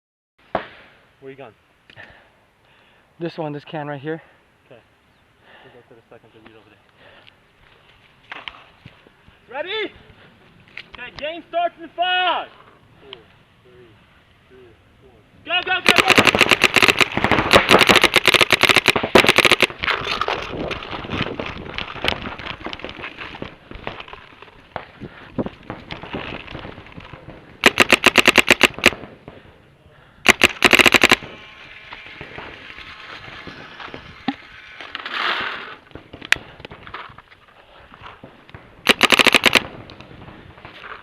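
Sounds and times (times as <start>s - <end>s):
paintball markers firing: 15.6s - 20.0s, 25.7s - 29.4s, 30.2s - 32.5s, 38.5s - 40.1s
rustling noise: 15.9s - 29.5s, 30.4s - 41.0s.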